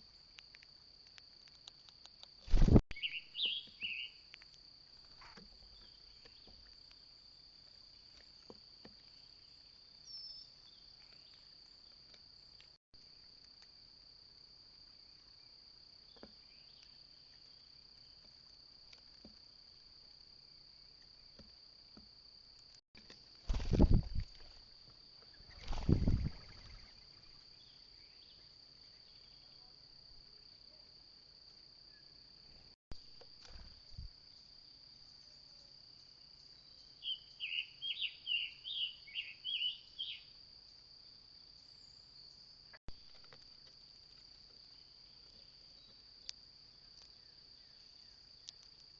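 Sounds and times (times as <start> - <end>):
high-pitched insect trill: 23.4 - 30.9, 33.3 - 48.9.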